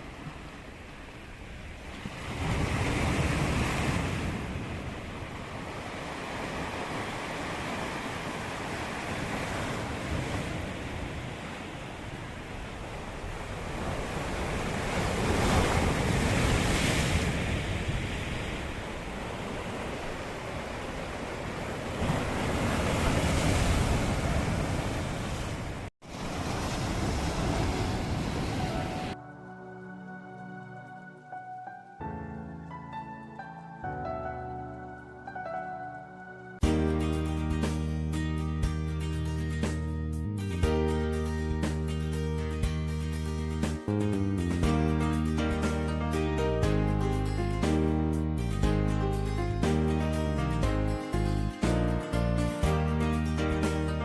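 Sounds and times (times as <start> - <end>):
sea waves washing onto shore: 0.0 - 29.2
wind buffeting microphone: 1.7 - 29.2.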